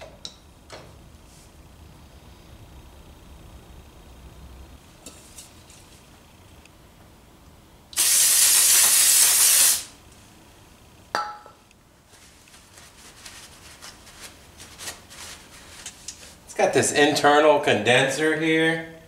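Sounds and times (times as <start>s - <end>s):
aerosol spray burst: 8.0s - 9.9s
cloth wiping rustle: 12.0s - 16.5s.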